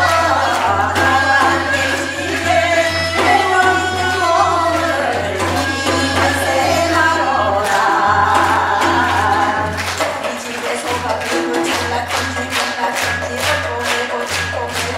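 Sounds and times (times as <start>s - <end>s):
hand drum strokes: 0.0s - 10.4s
folk voices singing together: 0.0s - 14.9s.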